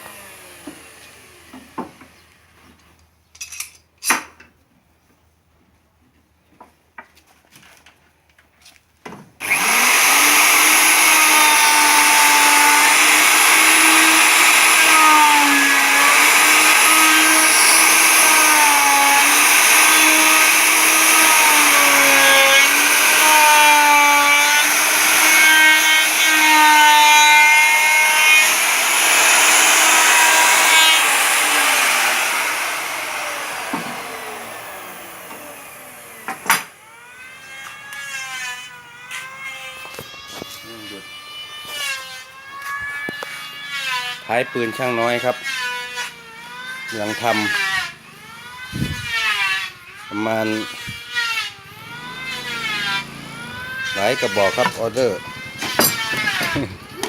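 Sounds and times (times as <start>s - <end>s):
power tool cutting wood: 0.0s - 2.4s, 9.4s - 57.0s.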